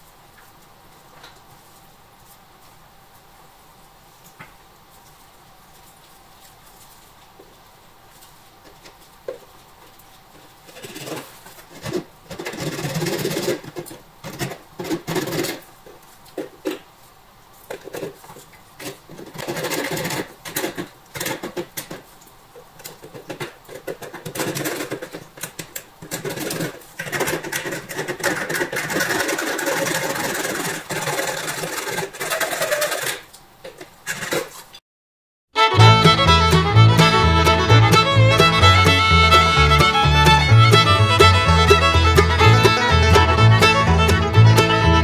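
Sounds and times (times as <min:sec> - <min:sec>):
hacksaw cutting metal: 0:11.8 - 0:15.6, 0:18.8 - 0:22.0, 0:26.1 - 0:33.3.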